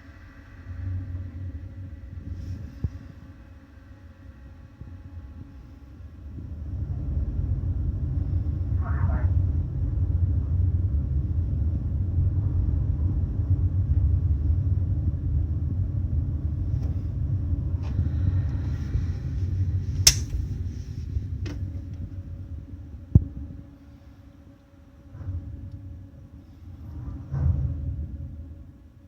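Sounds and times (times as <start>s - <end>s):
sharp clicks: 20.1s - 20.4s.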